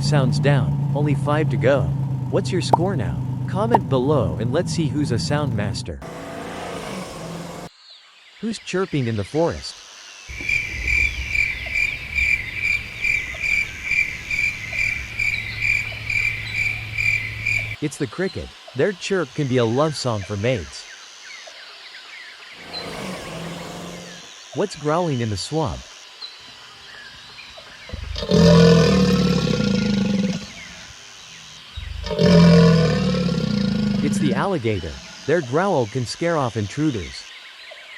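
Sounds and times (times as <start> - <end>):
cricket chirping: 9.7 - 37.9
alligator growling: 22.6 - 24.3, 27.9 - 30.9, 31.7 - 35.4.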